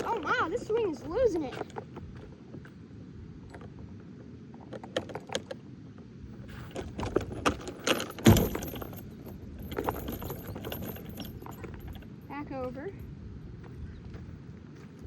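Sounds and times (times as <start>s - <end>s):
metal swing chains jangling: 0.0s - 1.7s, 6.5s - 13.1s.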